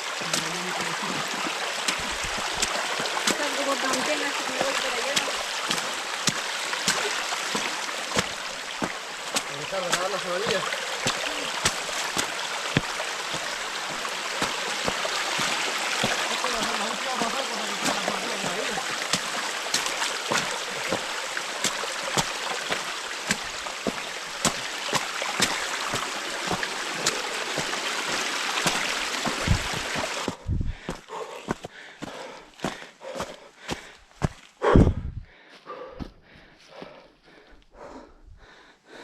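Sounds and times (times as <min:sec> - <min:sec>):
runner's footsteps: 0:00.2 - 0:37.4
steady rushing noise: 0:29.3 - 0:30.7.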